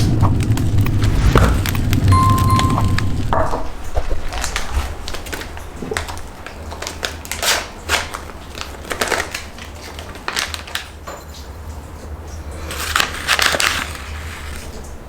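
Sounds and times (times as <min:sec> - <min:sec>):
food crunching: 0:04.0 - 0:10.9.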